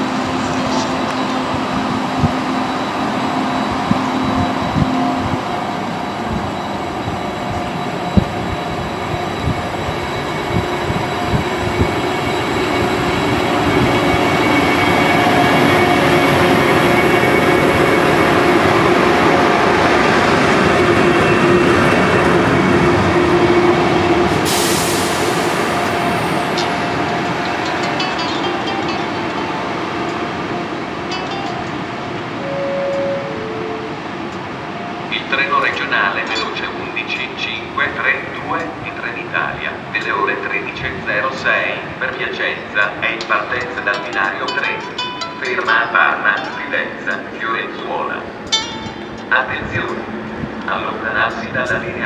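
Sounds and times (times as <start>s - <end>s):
electric train hum: 0.0s - 52.0s.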